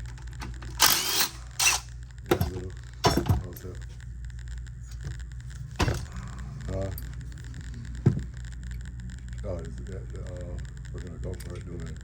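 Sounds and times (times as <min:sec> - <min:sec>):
steady low hum: 0:00.0 - 0:12.0
workshop tool bursts: 0:00.7 - 0:03.4.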